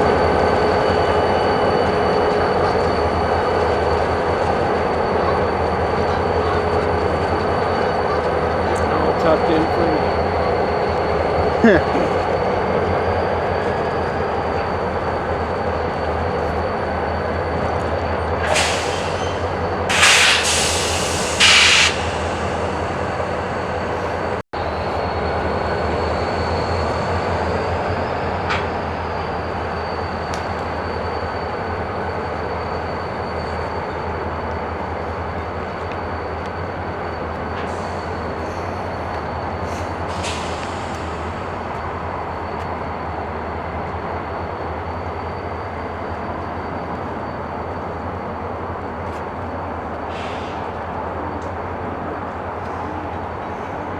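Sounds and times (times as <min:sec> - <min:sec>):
freight train rumble: 0:00.0 - 0:53.9
high-pitched wheel squeal: 0:09.0 - 0:24.2
short hissing bursts: 0:18.5 - 0:23.2.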